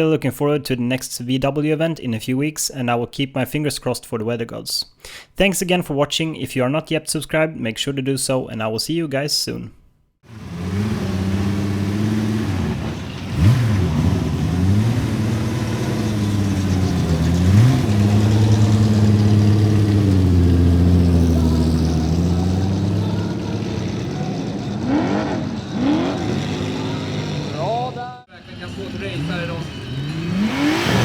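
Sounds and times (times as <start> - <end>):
car engine running: 10.3 - 31.0.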